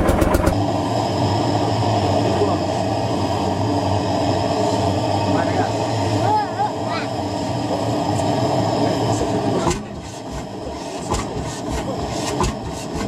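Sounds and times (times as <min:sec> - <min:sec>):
old tractor engine knocking: 0:00.0 - 0:00.6, 0:09.7 - 0:13.0.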